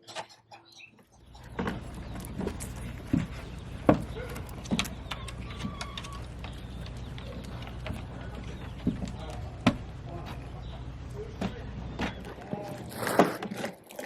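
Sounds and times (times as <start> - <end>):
steady low hum: 1.2 - 13.0.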